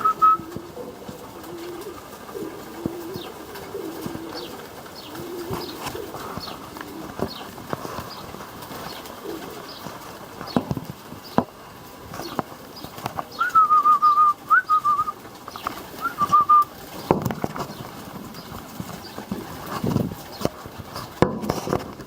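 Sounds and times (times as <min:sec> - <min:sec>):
wavering whistled notes: 0:00.0 - 0:00.5, 0:13.3 - 0:15.2, 0:16.0 - 0:16.7
pigeons cooing: 0:00.0 - 0:22.0.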